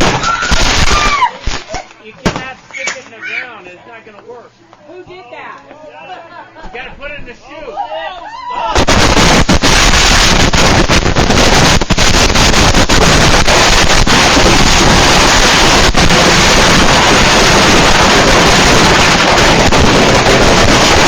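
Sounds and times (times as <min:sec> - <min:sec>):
fireworks roaring: 0:00.0 - 0:03.1, 0:08.7 - 0:21.0.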